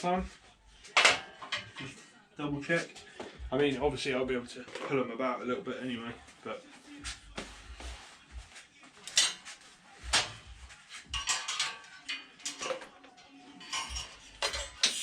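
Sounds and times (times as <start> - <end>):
steel plates clinking and knocking: 9.1 - 9.4, 11.1 - 15.0.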